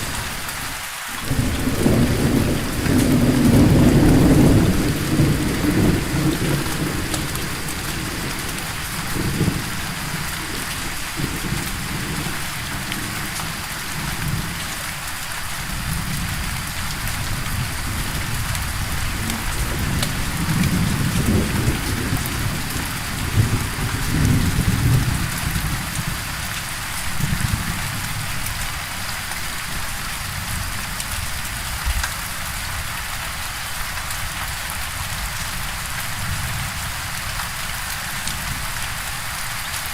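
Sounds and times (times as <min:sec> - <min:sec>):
steady rain: 0:00.0 - 0:39.9
thunder rolling: 0:01.2 - 0:14.8, 0:15.7 - 0:26.2.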